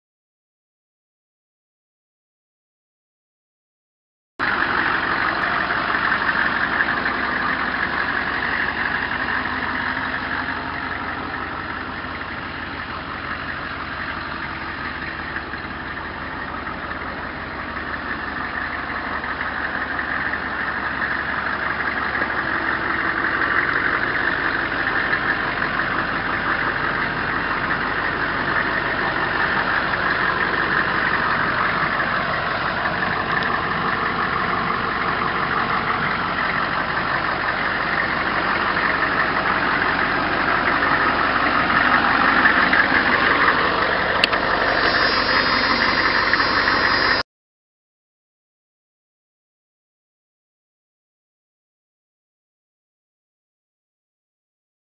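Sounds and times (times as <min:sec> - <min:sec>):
diesel engine idling: 0:04.4 - 0:47.2.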